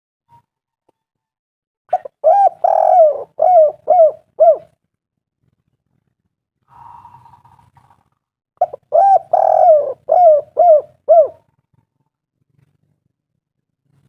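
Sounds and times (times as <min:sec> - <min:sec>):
dove cooing: 0:01.9 - 0:04.8, 0:06.7 - 0:08.0, 0:08.6 - 0:11.6.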